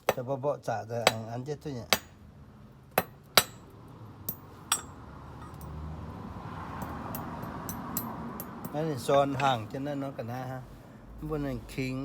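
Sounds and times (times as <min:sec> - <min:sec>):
metal tools clinking: 0:04.3 - 0:05.8.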